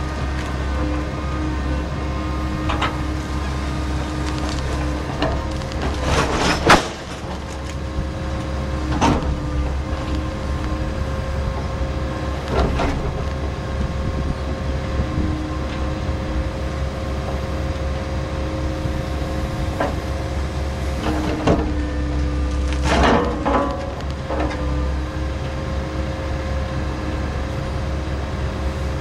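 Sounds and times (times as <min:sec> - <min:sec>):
diesel engine rumble and whine: 0:00.0 - 0:29.0
logs clunking: 0:02.6 - 0:14.0, 0:19.6 - 0:24.9.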